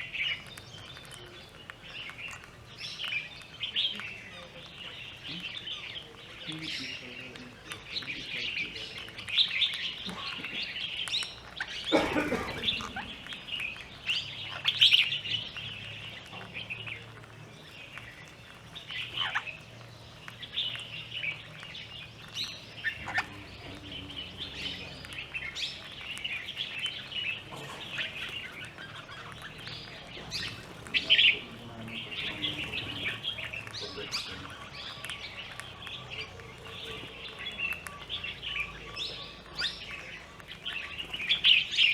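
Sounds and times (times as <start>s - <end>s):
birds chirping and calling: 0.0s - 41.9s
loud sharp bird call: 7.9s - 16.8s.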